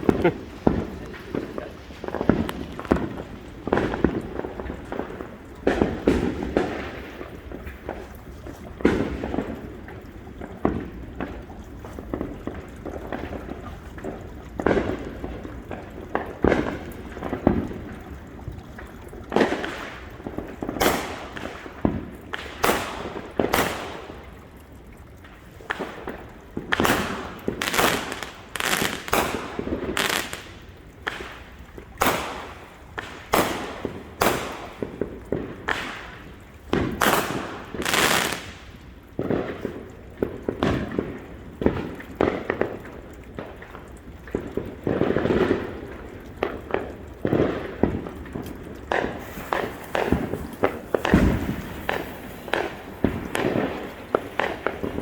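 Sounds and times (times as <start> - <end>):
fireworks bangs: 0.0 - 9.8, 19.3 - 24.5, 25.6 - 42.8, 44.5 - 55.0
fireworks hissing and crackling: 0.0 - 18.2, 18.8 - 24.5, 25.2 - 43.6, 44.3 - 55.0.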